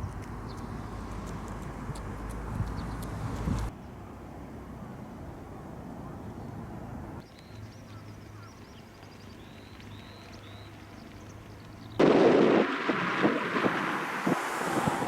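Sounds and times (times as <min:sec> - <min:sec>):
small birds chirping: 0:00.0 - 0:04.0, 0:07.2 - 0:12.0
loud rushing noise with knocks: 0:12.0 - 0:15.0.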